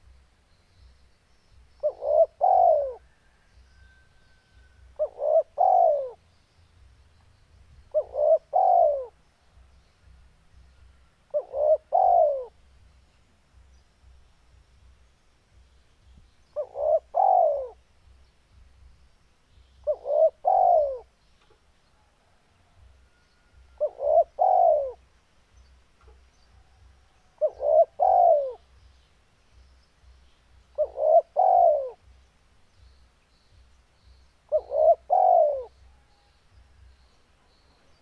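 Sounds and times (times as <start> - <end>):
dove cooing: 1.8 - 3.4, 5.0 - 6.2, 7.9 - 9.2, 11.3 - 12.6, 16.6 - 17.8, 19.8 - 21.1, 23.1 - 25.0, 26.6 - 28.7, 30.7 - 32.1, 34.5 - 36.2.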